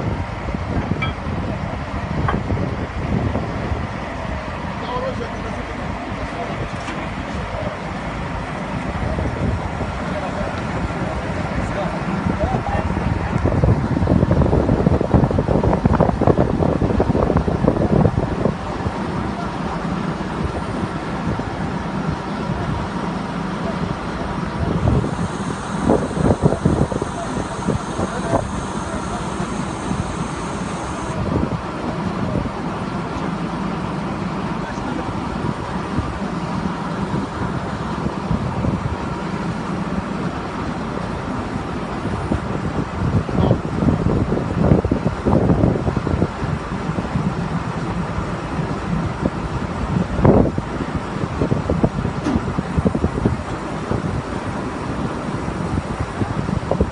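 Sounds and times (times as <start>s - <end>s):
drilling rig low drone: 0.0s - 45.2s.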